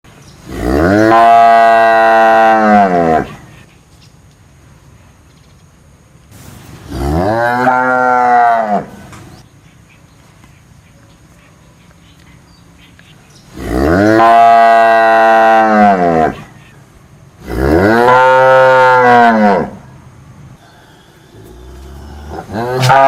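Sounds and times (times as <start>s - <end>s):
cow mooing: 0.5s - 3.4s, 6.9s - 8.9s, 13.6s - 16.4s, 17.4s - 19.8s, 21.4s - 23.0s.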